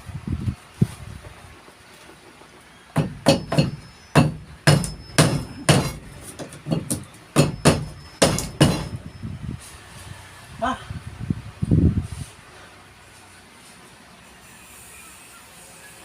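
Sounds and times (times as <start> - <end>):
hammer driving nails into wood: 3.0 - 9.0.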